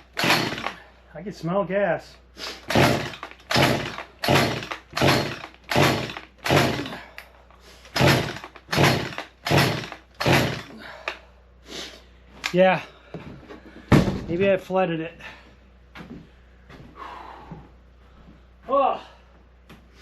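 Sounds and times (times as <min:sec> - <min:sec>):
recoil starter cord pulls: 0:00.0 - 0:00.8, 0:02.7 - 0:07.3, 0:07.9 - 0:11.2.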